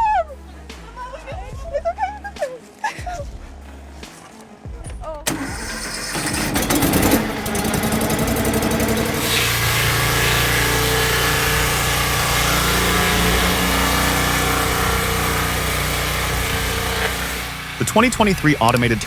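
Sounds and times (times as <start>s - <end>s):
fast clattering rattle: 5.3s - 9.2s
engine running: 5.3s - 19.0s.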